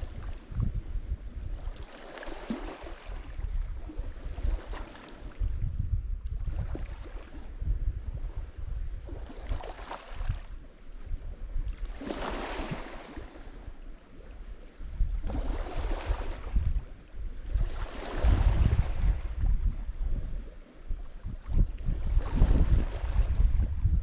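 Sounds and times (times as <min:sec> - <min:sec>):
wind rumble on microphone: 0:00.0 - 0:24.0
waves breaking on shore: 0:01.6 - 0:05.5, 0:09.1 - 0:10.5, 0:11.7 - 0:16.8, 0:17.4 - 0:19.6, 0:21.9 - 0:23.6.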